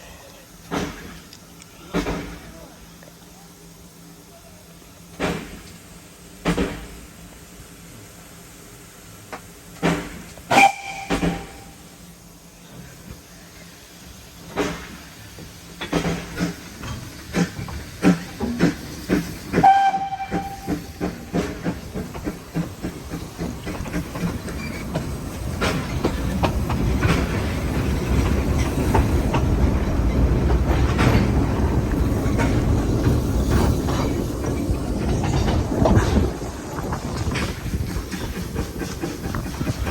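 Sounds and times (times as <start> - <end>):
train wheels clicking on rails: 0.0 - 3.2, 4.9 - 7.7, 8.5 - 39.9
train whistle blast: 10.5 - 11.9, 19.5 - 21.0.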